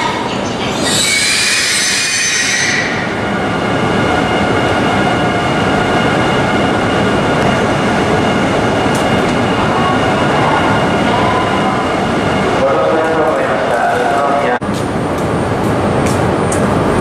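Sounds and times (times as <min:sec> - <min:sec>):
train hum and hiss: 0:00.0 - 0:17.0
train brake and wheel squeal: 0:00.7 - 0:03.1.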